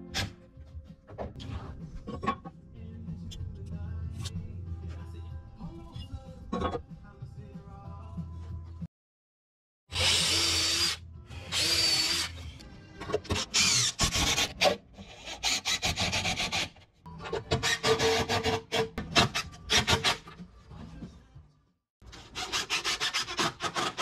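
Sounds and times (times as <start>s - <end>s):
cordless drill boring into wood: 10.0s - 12.4s.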